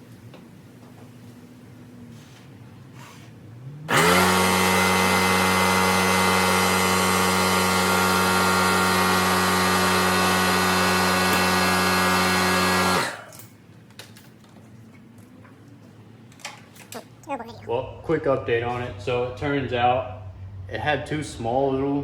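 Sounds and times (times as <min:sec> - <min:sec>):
electric pump humming and hissing: 0:03.9 - 0:13.5.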